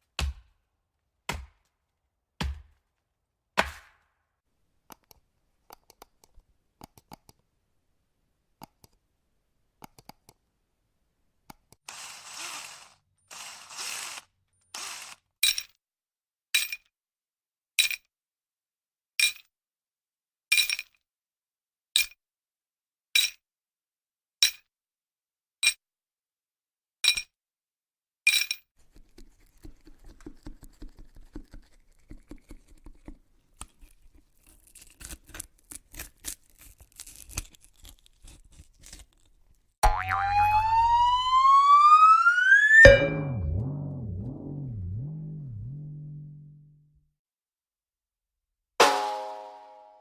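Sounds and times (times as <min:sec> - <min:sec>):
rising tone: 0:39.8 - 0:47.0.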